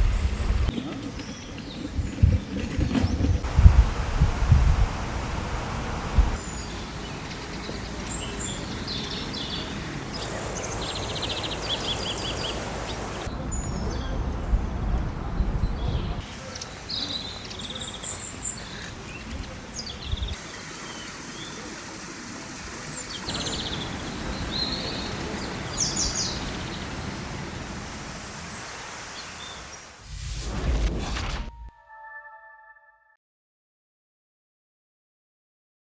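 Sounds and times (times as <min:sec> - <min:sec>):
low rumbles: 0:00.0 - 0:00.7, 0:01.3 - 0:08.4, 0:13.2 - 0:16.2
outdoor background hiss: 0:03.4 - 0:30.5
small birds chirping and trilling: 0:06.4 - 0:29.9.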